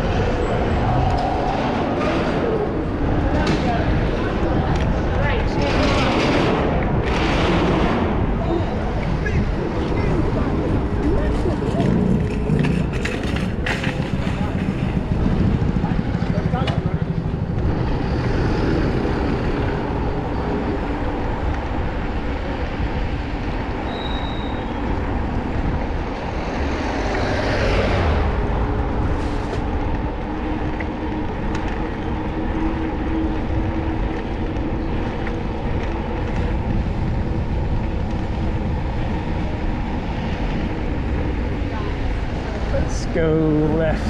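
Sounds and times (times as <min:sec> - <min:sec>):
street traffic noise: 0:00.0 - 0:44.0
wind rumbling on microphone: 0:00.0 - 0:44.0
short high squeal: 0:23.9 - 0:24.8.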